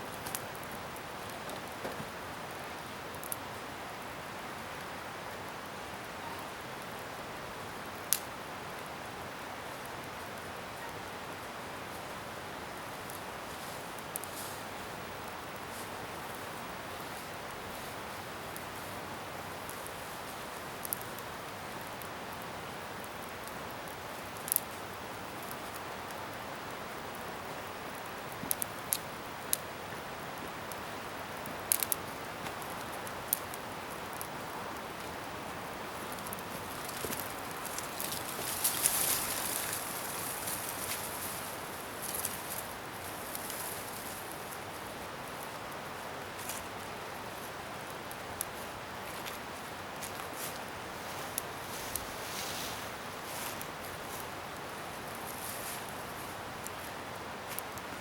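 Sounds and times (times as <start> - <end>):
bonfire hissing: 0.0 - 58.0.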